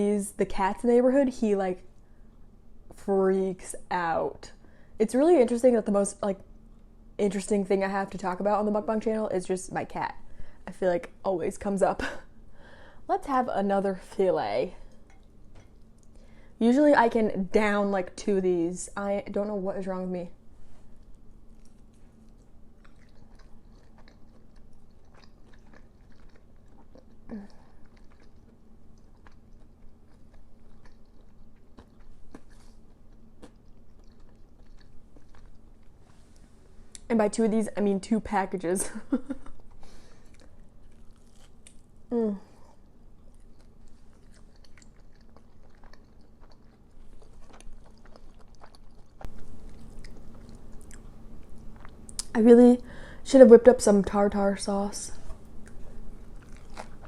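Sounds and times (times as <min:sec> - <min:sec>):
crunchy chewing of fried fish: 0:20.8 - 0:36.7, 0:39.5 - 0:52.2, 0:55.3 - 0:57.0.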